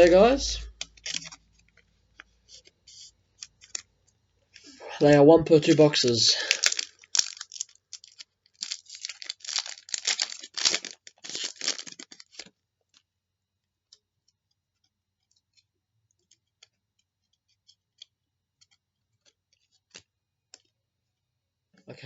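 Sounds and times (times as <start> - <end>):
card pack rustling and crackling: 0.0 - 3.9, 5.5 - 13.0
faint clicks of cards sorted: 0.0 - 4.8, 5.5 - 13.1, 13.8 - 20.8.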